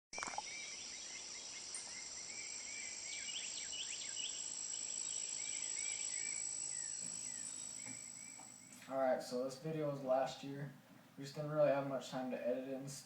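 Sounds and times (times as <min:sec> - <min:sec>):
high-pitched insect drone: 0:00.2 - 0:08.7.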